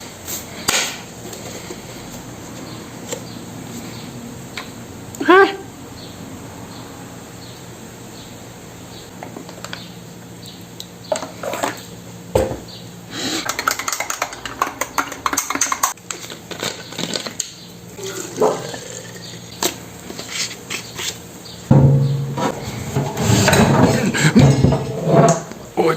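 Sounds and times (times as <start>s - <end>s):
kitchen items clattering: 13.3s - 17.4s, 21.7s - 25.8s
sharp knock: 21.7s - 22.6s.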